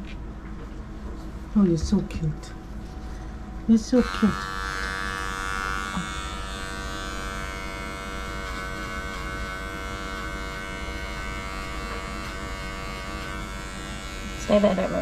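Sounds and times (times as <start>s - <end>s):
electric clippers buzzing: 3.8s - 15.0s.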